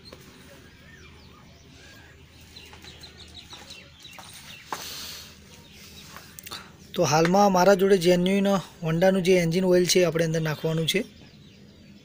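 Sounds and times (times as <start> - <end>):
faint bird calls: 0.0 - 6.8.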